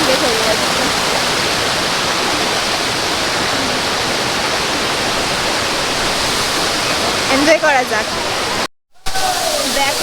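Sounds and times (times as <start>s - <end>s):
waterfall roaring: 0.0s - 10.0s.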